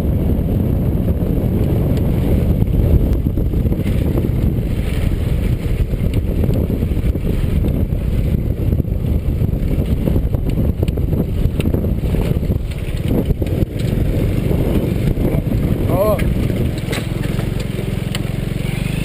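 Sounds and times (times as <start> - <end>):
motorcycle engine rumble: 0.0 - 19.0
wind buffeting microphone: 0.0 - 19.0.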